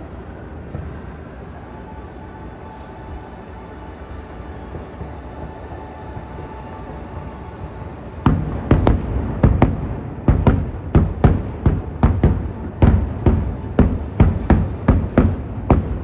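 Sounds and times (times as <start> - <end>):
fireworks bangs and booms: 0.0 - 1.9, 4.2 - 16.0.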